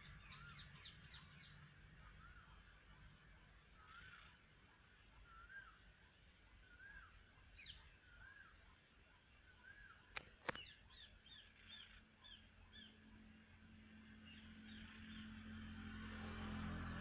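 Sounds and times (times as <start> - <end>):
faint bird chirps: 0.0 - 13.3
sharp clicks: 10.1 - 10.7
low engine hum: 11.3 - 17.0.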